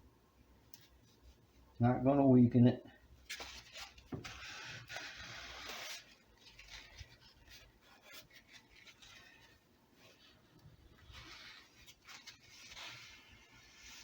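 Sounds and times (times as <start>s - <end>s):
scratchy strokes: 3.4s - 14.0s.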